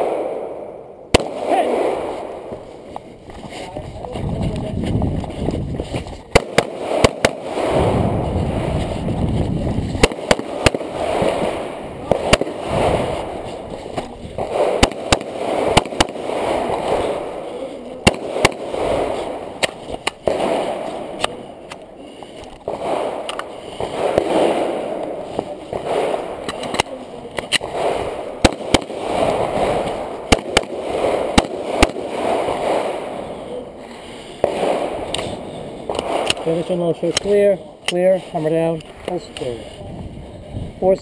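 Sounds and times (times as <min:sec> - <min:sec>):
pistol shots: 0:00.0 - 0:02.6, 0:06.3 - 0:08.8, 0:10.0 - 0:21.8, 0:22.6 - 0:33.4, 0:34.4 - 0:36.5.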